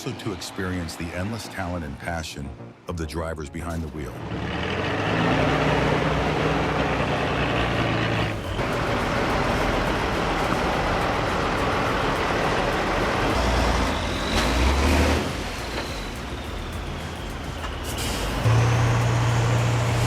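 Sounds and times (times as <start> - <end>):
heavy truck engines under load: 4.2 - 20.0.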